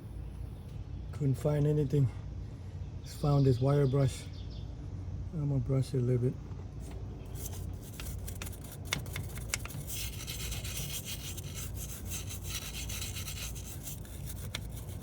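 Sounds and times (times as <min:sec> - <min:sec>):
wire brush scrubbing metal: 0:07.4 - 0:15.0.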